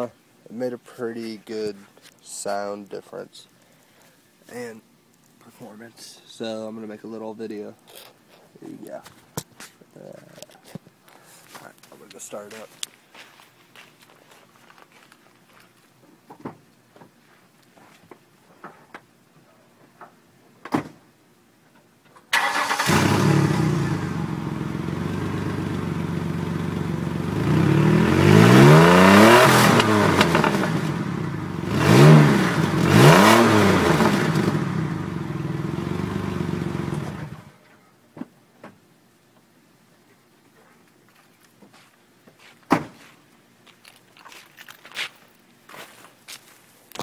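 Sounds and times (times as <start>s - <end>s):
car engine starting and revving: 22.4s - 25.9s, 26.9s - 37.5s.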